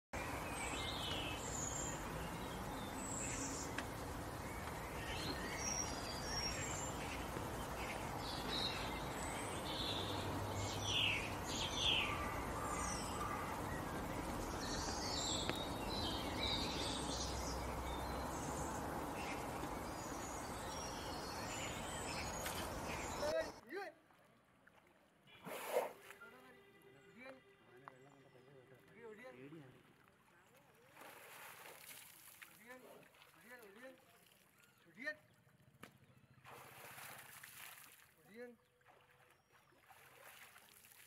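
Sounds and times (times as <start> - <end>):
birds chirping: 0.2 - 23.6
outdoor background noise: 0.2 - 41.0.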